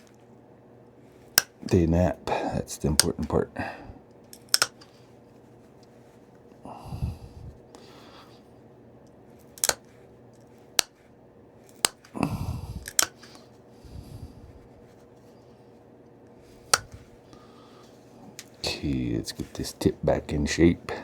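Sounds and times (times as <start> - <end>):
rustling of handling: 4.1 - 6.6
sharp clicks of stone flaking: 4.4 - 4.9, 9.4 - 9.8, 12.8 - 13.4.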